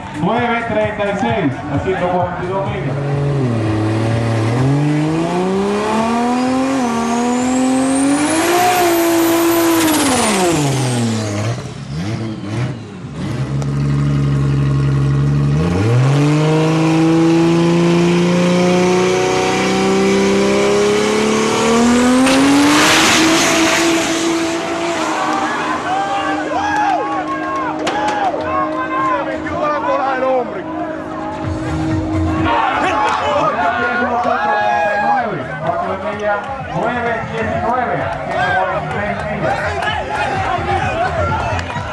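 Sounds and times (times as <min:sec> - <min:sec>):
drag racing car engine accelerating: 0:02.0 - 0:34.8.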